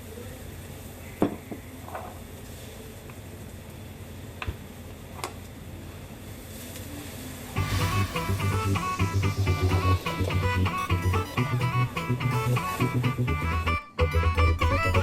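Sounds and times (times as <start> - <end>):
restaurant room hum: 0.0 - 15.0.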